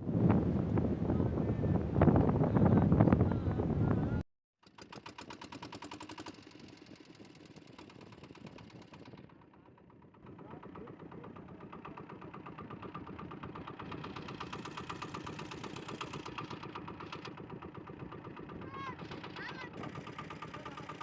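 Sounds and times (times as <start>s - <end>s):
boat engine knocking: 4.6s - 21.0s.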